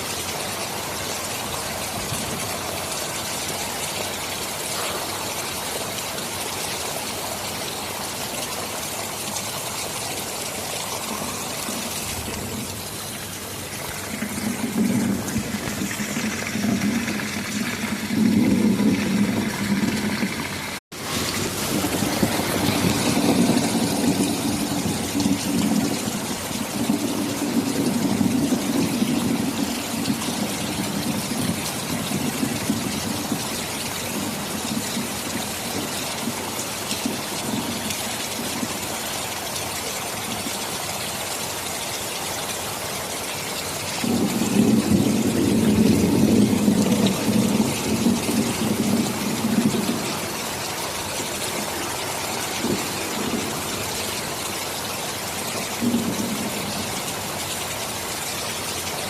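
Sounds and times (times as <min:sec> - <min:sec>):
heavy rain: 0:00.0 - 0:59.0
rolling thunder rumble: 0:10.9 - 0:38.8, 0:44.0 - 0:57.2.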